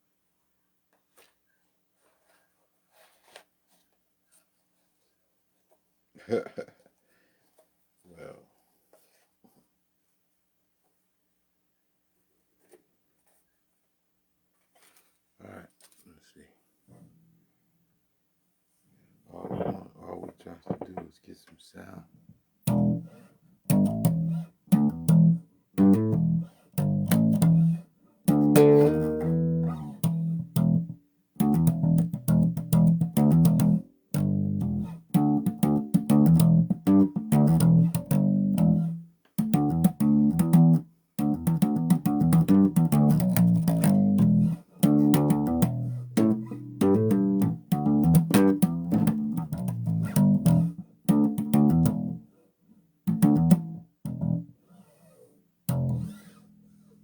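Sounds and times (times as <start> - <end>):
bass guitar playing: 22.6 - 23.1, 23.7 - 52.2, 53.1 - 54.5, 55.7 - 56.4.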